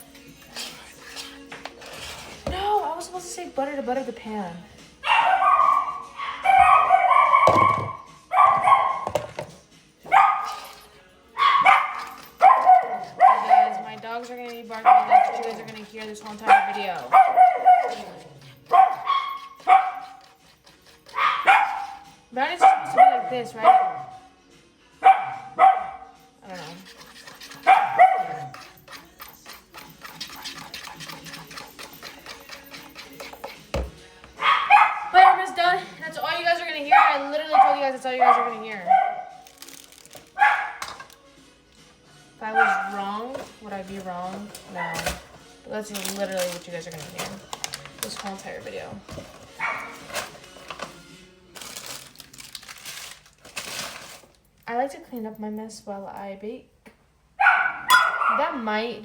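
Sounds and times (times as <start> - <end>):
batter stirred in a mixing bowl: 0.0 - 5.0, 9.0 - 22.6, 26.3 - 34.4, 35.9 - 54.5
dogs barking: 5.0 - 9.3, 10.0 - 24.4, 25.0 - 33.5, 34.3 - 39.7, 40.3 - 41.1, 42.4 - 45.3, 49.5 - 50.4, 57.4 - 58.8.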